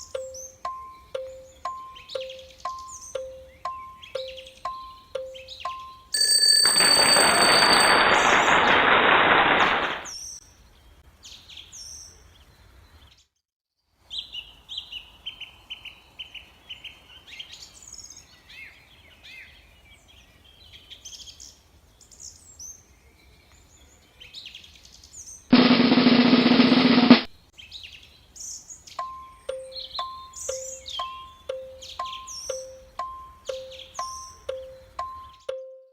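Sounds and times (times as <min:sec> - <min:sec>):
birds chirping: 0:00.0 - 0:06.2, 0:28.5 - 0:35.6
loud noisy burst: 0:06.8 - 0:10.1, 0:25.5 - 0:27.3.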